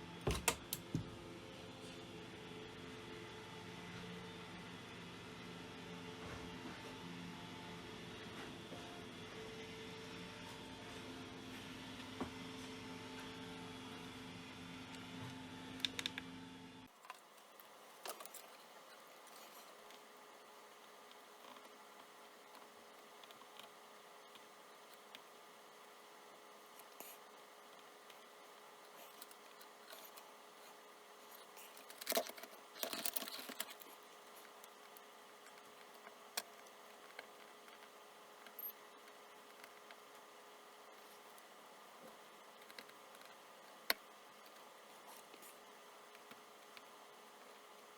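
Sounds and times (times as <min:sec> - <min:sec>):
low electrical hum: 0:00.0 - 0:47.9
clicks and rustling of handled parts: 0:17.0 - 0:20.1, 0:28.9 - 0:40.2.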